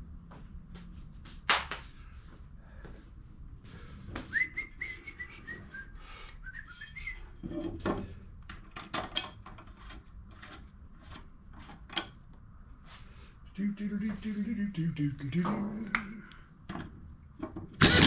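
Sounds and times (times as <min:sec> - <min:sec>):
person whistling a tune: 0:04.2 - 0:07.3
tools clicking and clanking: 0:07.6 - 0:12.2.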